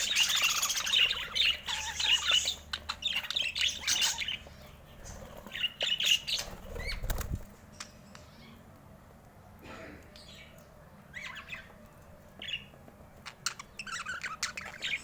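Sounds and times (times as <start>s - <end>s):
budgerigars chirping: 0.0s - 7.2s, 12.4s - 15.0s.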